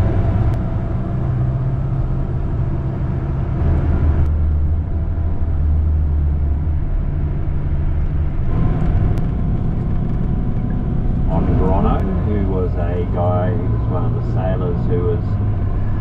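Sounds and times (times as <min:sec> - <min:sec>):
bus engine and road noise: 0:00.0 - 0:16.0.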